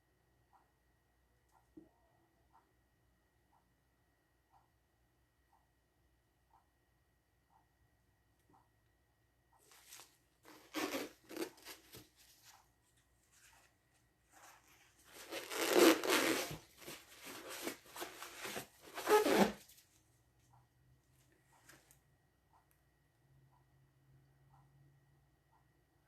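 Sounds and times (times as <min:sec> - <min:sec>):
paper towel rustling and tearing: 0:09.8 - 0:12.4, 0:14.3 - 0:19.6.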